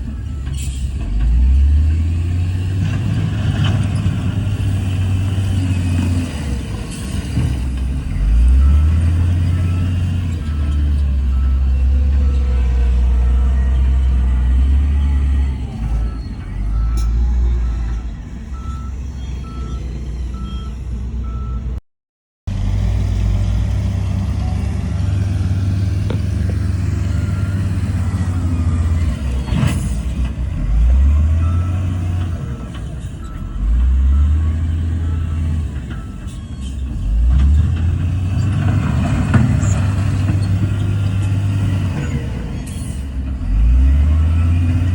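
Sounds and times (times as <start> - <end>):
diesel engine revving: 0.0 - 21.8, 22.4 - 44.9
reversing alarm beeping: 8.1 - 21.8, 30.7 - 36.8.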